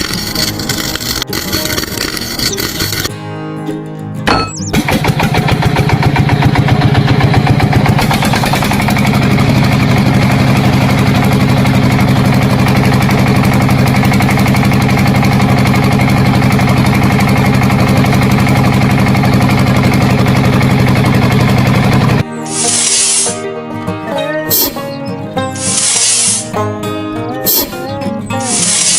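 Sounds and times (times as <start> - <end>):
small engine chugging: 0.0 - 3.1, 4.6 - 23.5, 24.5 - 26.6, 27.4 - 28.9.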